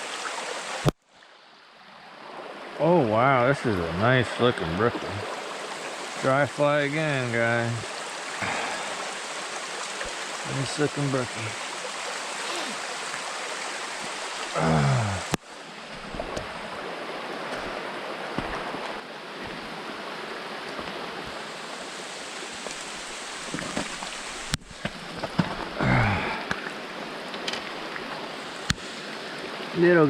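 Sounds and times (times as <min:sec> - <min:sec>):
mountain stream flowing: 0:00.0 - 0:30.0
short wordless voice: 0:02.8 - 0:05.2, 0:06.2 - 0:08.9, 0:10.4 - 0:11.6, 0:14.5 - 0:15.3.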